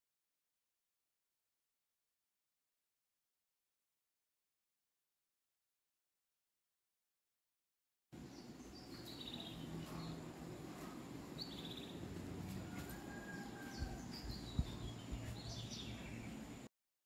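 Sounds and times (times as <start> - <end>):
low background noise: 8.2 - 16.7
small birds chirping: 8.2 - 16.7.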